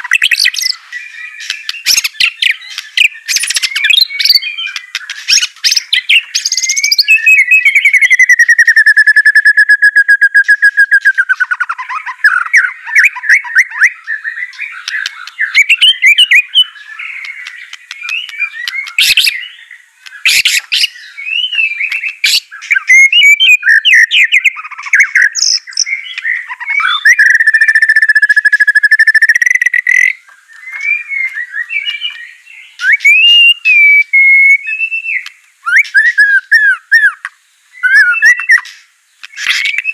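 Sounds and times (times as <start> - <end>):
rapid bird trills: 0.0 - 39.9
songbird singing: 0.0 - 39.9
sharp clicks: 17.2 - 19.4.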